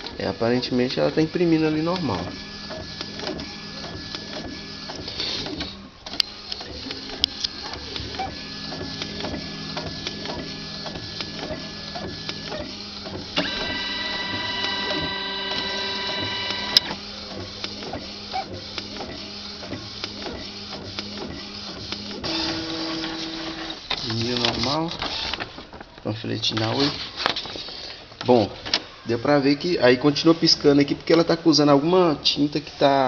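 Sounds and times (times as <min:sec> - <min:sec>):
printer motor whine: 0:00.0 - 0:25.4
inkjet printer printing: 0:00.0 - 0:33.0
printer clicks: 0:01.1 - 0:17.0, 0:21.9 - 0:25.5.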